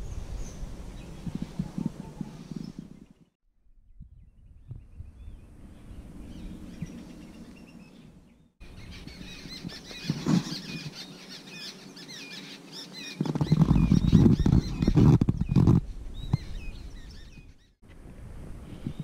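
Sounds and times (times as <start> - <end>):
small birds chirping: 0.0 - 3.4, 4.1 - 17.9.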